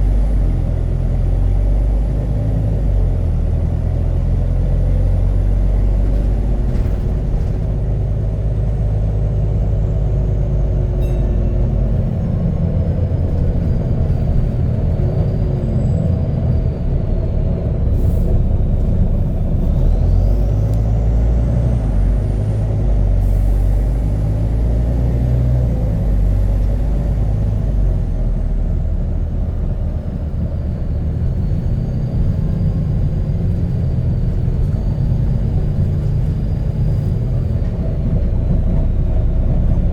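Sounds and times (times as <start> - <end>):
bus diesel engine rumble: 0.0 - 39.9.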